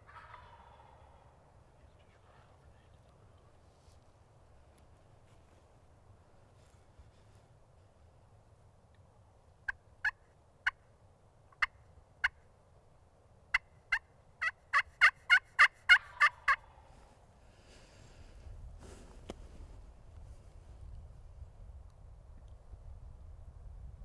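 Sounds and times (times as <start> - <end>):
turkey clucking: 0.0 - 1.4, 13.5 - 16.9
turkey yelping: 0.0 - 1.4, 13.5 - 16.9.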